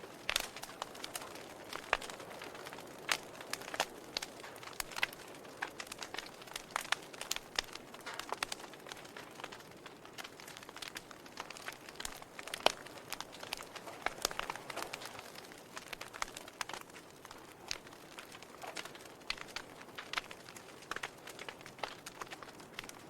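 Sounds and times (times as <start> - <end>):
logs crackling in fireplace: 0.0 - 23.0.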